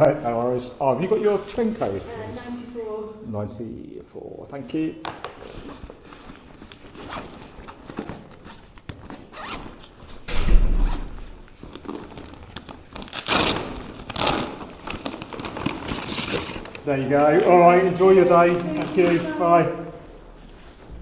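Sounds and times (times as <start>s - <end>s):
bags scraping and rustling: 5.4s - 19.5s
loud bump: 10.3s - 11.1s.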